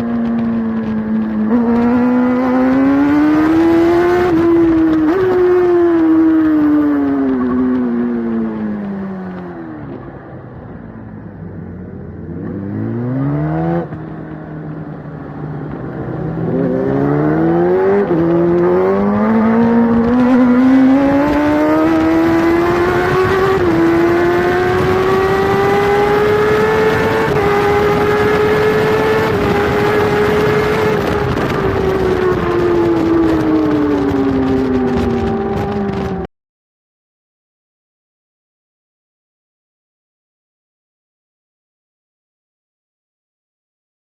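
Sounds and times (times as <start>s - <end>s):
motorcycle engine accelerating: 0.0s - 36.3s
wind rushing: 15.7s - 36.3s.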